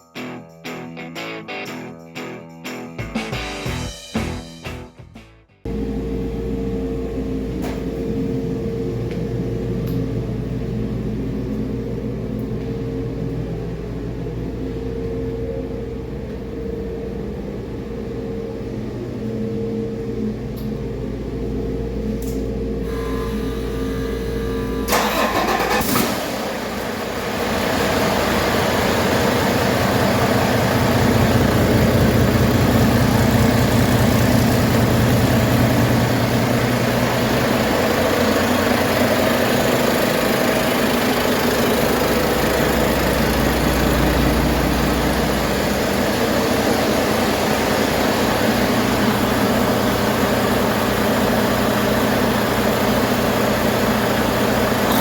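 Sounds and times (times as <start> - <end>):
diesel engine idling: 24.8 - 55.0.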